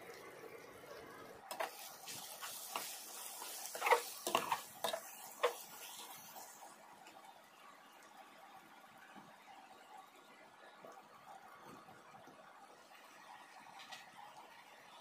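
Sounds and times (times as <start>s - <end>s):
frying sizzle: 0.0s - 9.8s
utensil scraping a pan: 1.5s - 6.2s.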